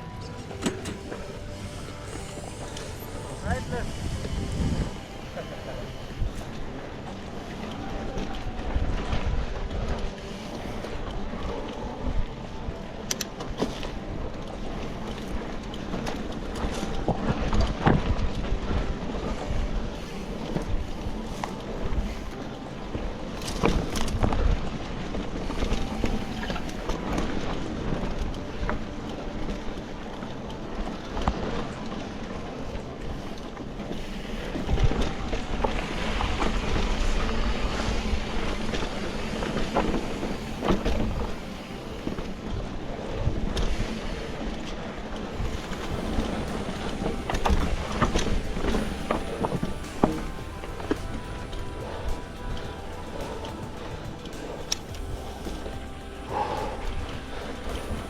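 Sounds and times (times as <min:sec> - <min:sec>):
wind buffeting microphone: 0:00.0 - 0:13.3
road rumble: 0:45.0 - 0:58.0.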